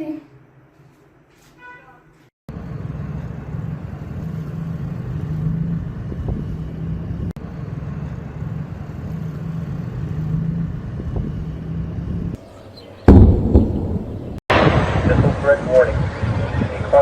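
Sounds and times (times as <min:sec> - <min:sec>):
vehicle engine rumble: 0:02.5 - 0:14.5.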